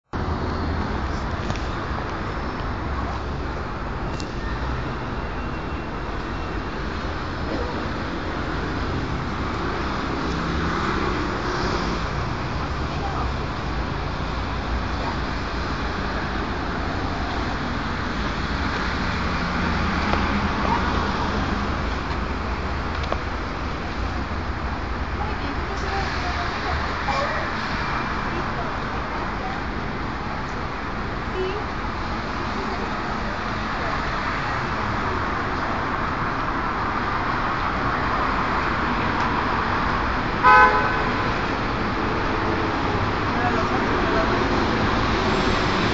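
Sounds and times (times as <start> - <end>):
traffic rumble and hiss: 0.2 - 45.9
vehicle horn beep: 40.4 - 41.2.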